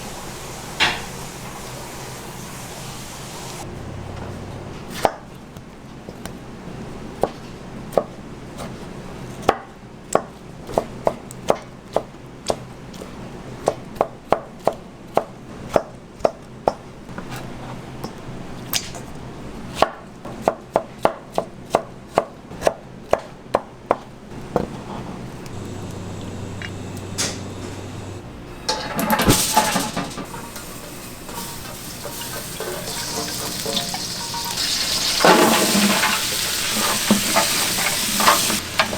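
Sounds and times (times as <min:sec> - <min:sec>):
kitchen clatter and rustling: 0:00.4 - 0:03.6, 0:28.7 - 0:38.9
knife chopping on cutting board: 0:19.7 - 0:24.8.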